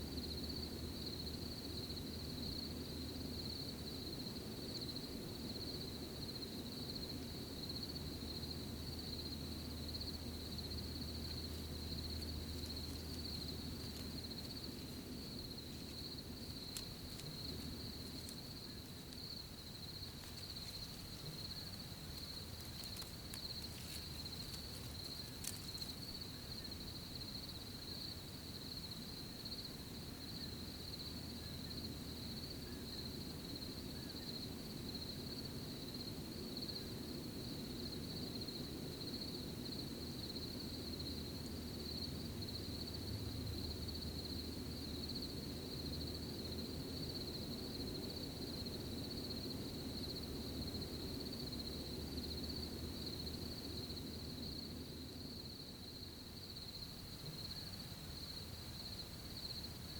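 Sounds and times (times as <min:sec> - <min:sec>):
crickets chirring: 0:00.0 - 0:59.9
low rumble of night ambience: 0:00.0 - 0:59.9
faint ticks: 0:11.2 - 0:26.2.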